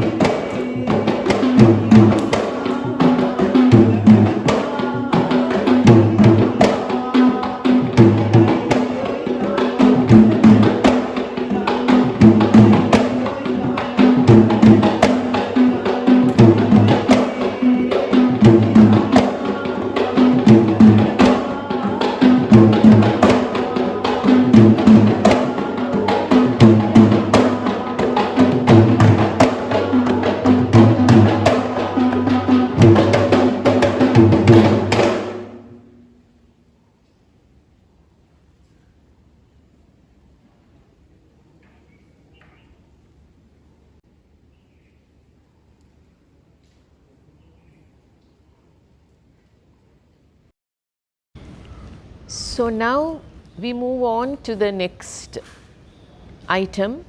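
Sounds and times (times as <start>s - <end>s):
hand drums rhythm: 0.0s - 35.8s.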